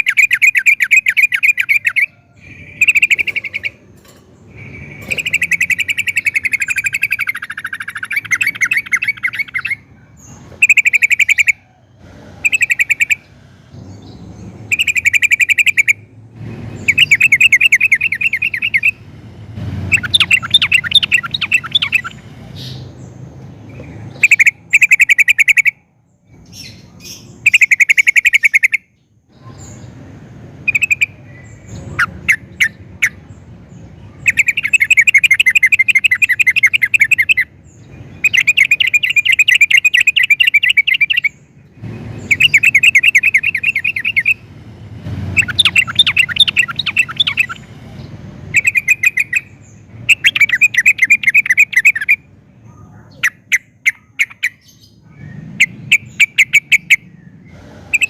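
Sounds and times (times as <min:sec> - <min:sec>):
bird singing rattling trills: 0:00.0 - 0:58.0.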